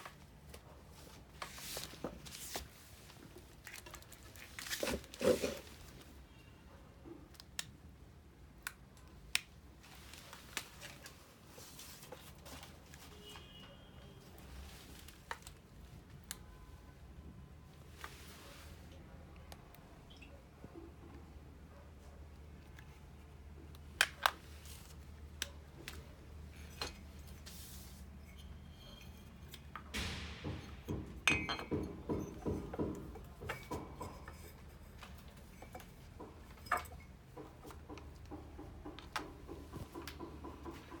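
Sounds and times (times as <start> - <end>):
knocks and clatter: 29.7 - 41.0.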